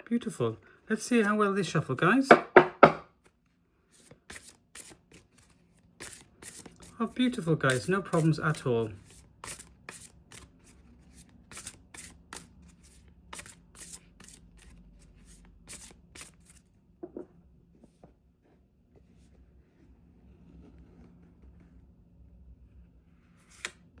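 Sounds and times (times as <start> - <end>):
cards being handled: 4.0 - 16.6, 23.4 - 23.9
cards being shuffled: 4.0 - 16.6, 23.4 - 23.9.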